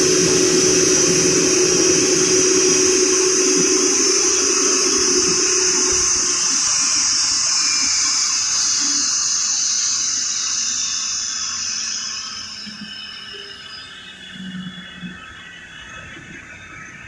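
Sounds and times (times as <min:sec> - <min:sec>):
jet engines rushing hiss: 0:00.0 - 0:07.2.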